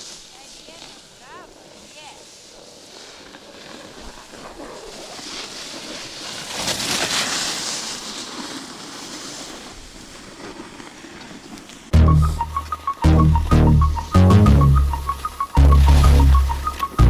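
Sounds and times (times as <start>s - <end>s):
loud music with plucked melody: 12.0s - 17.0s.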